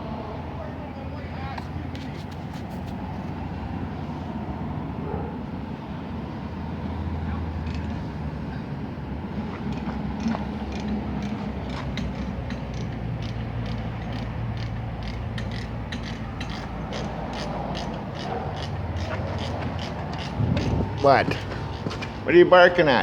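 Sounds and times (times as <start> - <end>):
excavator diesel engine running: 0.0 - 23.0
metallic clanking and creaking: 9.5 - 22.2.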